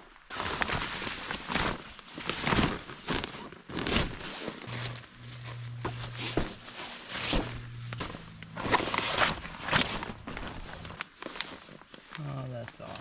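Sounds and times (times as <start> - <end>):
rustling handling noises: 0.3 - 13.0
footsteps: 4.0 - 11.9
low hum: 4.6 - 11.8.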